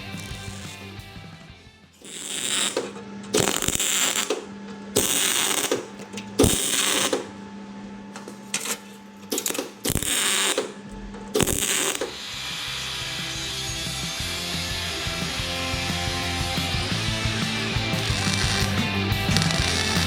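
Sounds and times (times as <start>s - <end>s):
welding crackling bursts: 0.0s - 1.0s, 2.0s - 7.4s, 9.3s - 20.0s
steady low hum: 2.0s - 12.4s.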